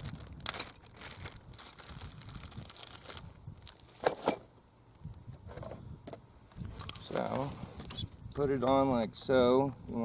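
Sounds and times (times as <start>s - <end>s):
hands rustling and scraping plastic: 0.0s - 4.1s.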